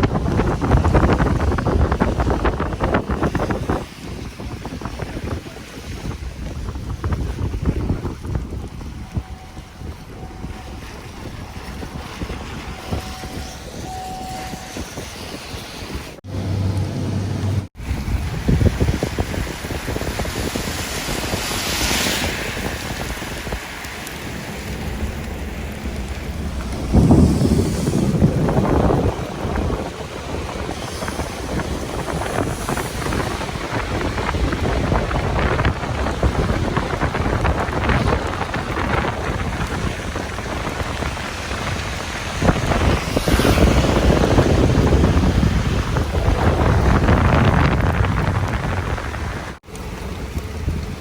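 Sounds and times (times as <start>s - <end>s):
wind buffeting microphone: 0.0s - 51.0s
rain falling: 22.3s - 43.2s, 43.8s - 51.0s
sharp thunder crack: 26.4s - 34.4s.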